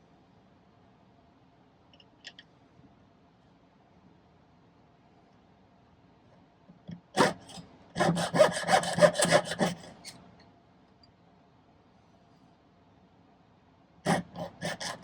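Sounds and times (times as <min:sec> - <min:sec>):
saw strokes cutting metal: 0:07.2 - 0:10.1, 0:14.1 - 0:15.0.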